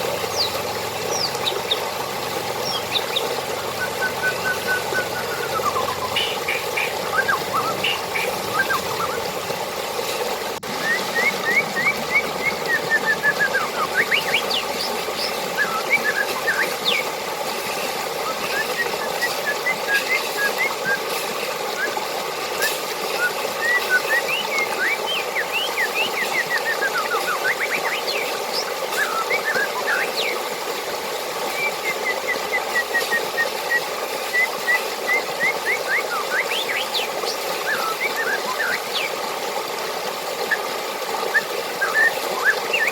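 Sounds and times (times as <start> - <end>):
running water: 0.0 - 42.9
bird whistled chirps: 2.6 - 9.2, 10.8 - 17.1, 18.2 - 21.1, 23.2 - 30.4, 31.5 - 39.2, 41.3 - 42.9.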